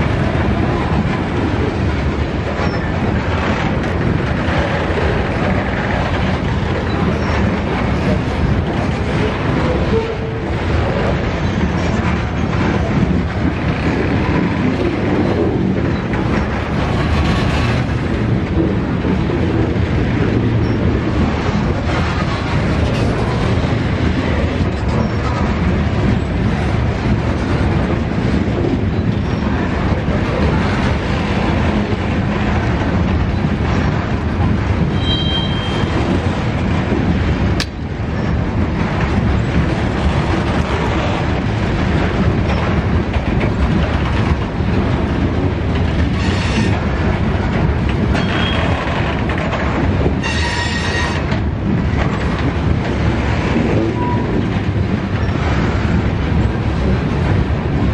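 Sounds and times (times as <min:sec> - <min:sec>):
freight train wheels rumbling on rail: 0:00.0 - 0:57.9
high-pitched wheel squeals: 0:35.0 - 0:35.9.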